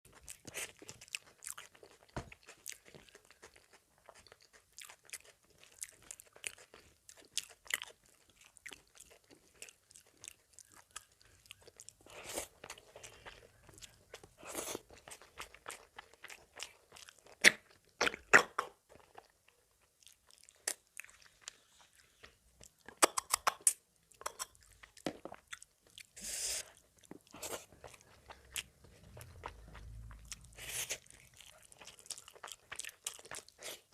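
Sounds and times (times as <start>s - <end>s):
person chewing and biting: 0.1s - 33.9s.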